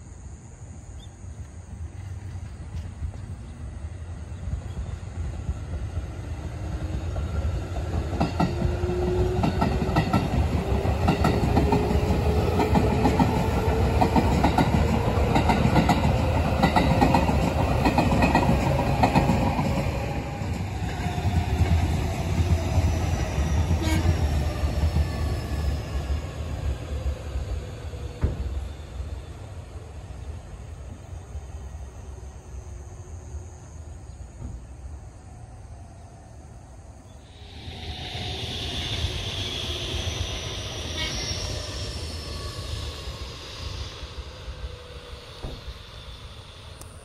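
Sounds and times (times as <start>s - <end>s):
electric train passing: 0.0s - 47.0s
train tones falling in pitch: 23.0s - 26.2s, 37.3s - 46.9s
train motor whine: 37.3s - 47.0s.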